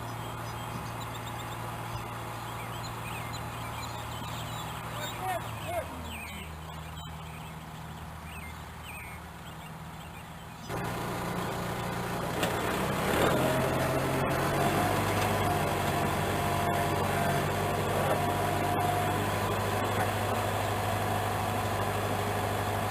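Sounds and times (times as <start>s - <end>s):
tractor engine running: 0.0s - 22.9s
steady whine: 10.6s - 22.9s.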